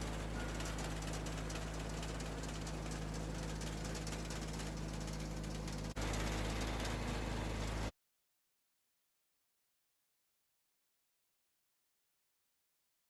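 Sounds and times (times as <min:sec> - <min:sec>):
garden tractor engine running: 0:00.0 - 0:07.9.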